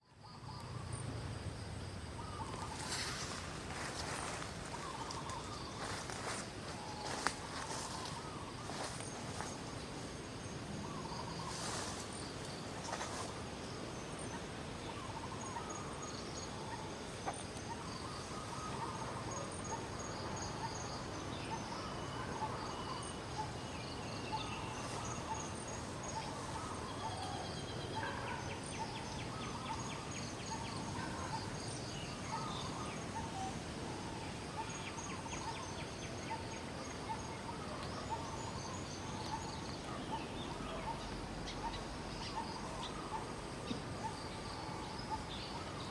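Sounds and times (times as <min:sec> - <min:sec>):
insects trilling: 0:00.0 - 0:45.9
steady background hiss: 0:00.0 - 0:45.9.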